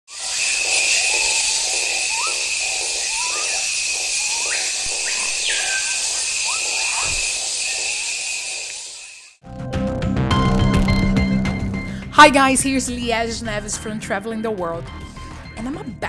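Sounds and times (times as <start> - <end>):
birds calling: 0.1 - 9.4
insect chorus buzzing: 0.1 - 9.4
long falling whistle: 0.1 - 9.4.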